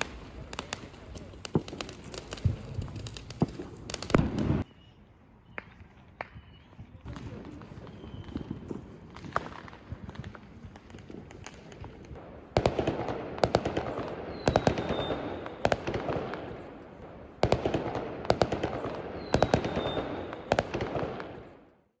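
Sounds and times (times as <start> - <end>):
fireworks bangs: 0.0 - 4.7, 5.6 - 21.8
fireworks crackle: 0.0 - 4.7, 5.6 - 21.8
high whistle: 14.3 - 15.4, 19.5 - 20.2.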